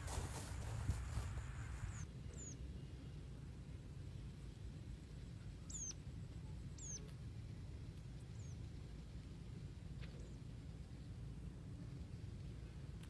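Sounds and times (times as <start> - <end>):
low steady rumble: 0.0 - 13.0
small bird chirping: 1.8 - 3.0, 5.3 - 7.2, 8.1 - 8.7.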